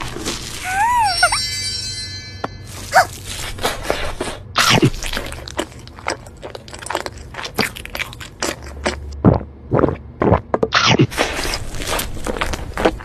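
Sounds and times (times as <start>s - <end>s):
eating crunching and clicking: 4.7s - 13.0s.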